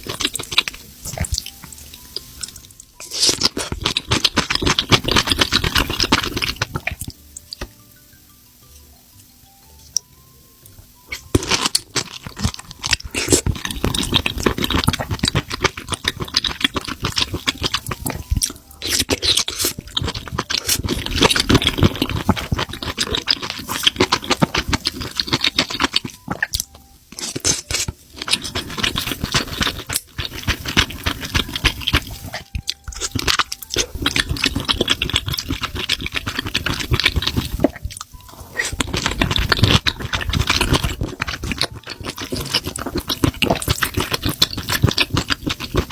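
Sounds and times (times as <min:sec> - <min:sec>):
crunchy chewing: 0:00.0 - 0:07.7, 0:11.1 - 0:45.9.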